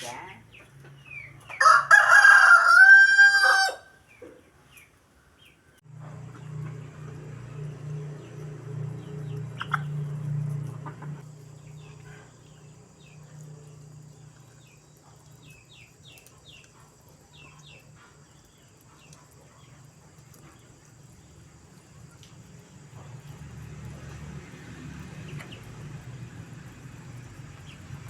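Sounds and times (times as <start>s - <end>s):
chickens calling: 0.0s - 13.4s, 25.1s - 25.9s.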